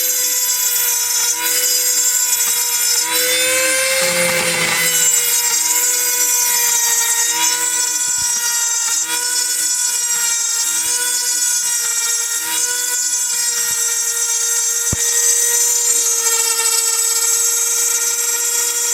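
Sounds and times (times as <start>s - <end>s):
milling machine spindle whine: 0.0s - 18.9s
low motor tone: 14.9s - 17.7s.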